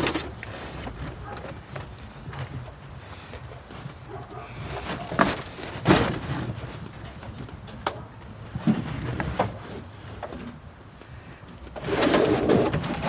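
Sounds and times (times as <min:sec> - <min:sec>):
carpet scraping rustle: 0:00.0 - 0:07.6, 0:11.7 - 0:13.0
knocks and clatters: 0:04.1 - 0:10.5.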